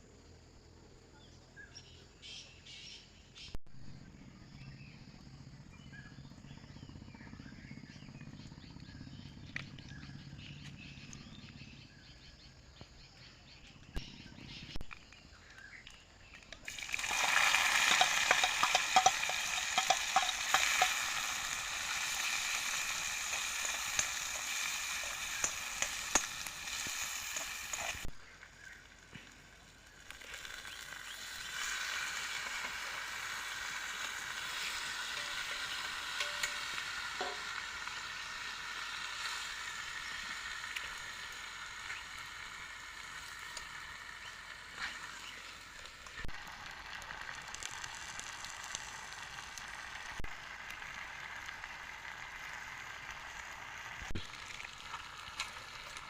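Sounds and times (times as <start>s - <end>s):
crackles of frying: 7.6s - 56.0s
food sizzling in a pan: 16.7s - 56.0s.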